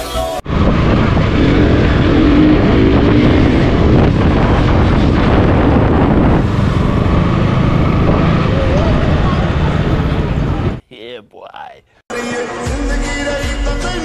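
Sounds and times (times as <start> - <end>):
motorcycle engine running: 0.4 - 10.8
wind rushing over microphone: 0.4 - 10.8.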